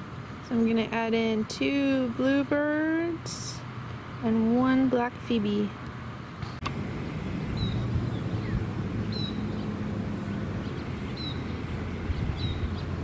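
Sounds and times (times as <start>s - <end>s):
low outdoor rumble: 0.0s - 13.0s
faint hum: 6.6s - 13.0s
small bird chirping: 7.2s - 13.0s.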